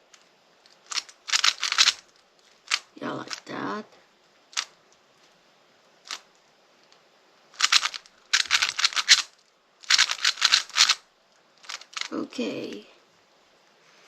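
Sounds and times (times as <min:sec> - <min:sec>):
rapid plastic clicks of puzzle cube: 0:00.1 - 0:03.4, 0:04.5 - 0:05.0, 0:06.0 - 0:11.0, 0:11.6 - 0:12.2.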